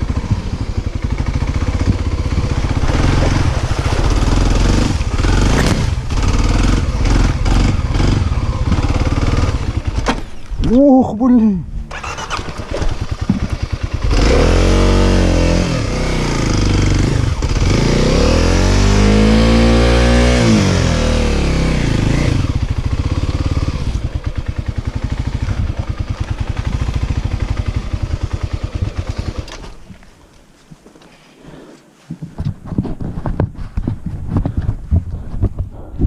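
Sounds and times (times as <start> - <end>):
dirt bike engine revving: 0.0 - 10.1, 11.8 - 29.7.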